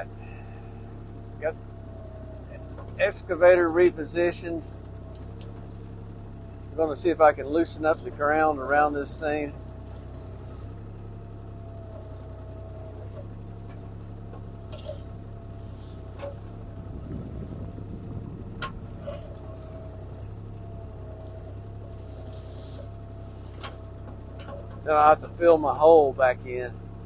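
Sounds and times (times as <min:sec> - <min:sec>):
diesel engine running with whine: 0:00.0 - 0:27.0
rough scraping: 0:11.7 - 0:25.5
bucket digging ground: 0:13.0 - 0:20.2, 0:20.8 - 0:25.4.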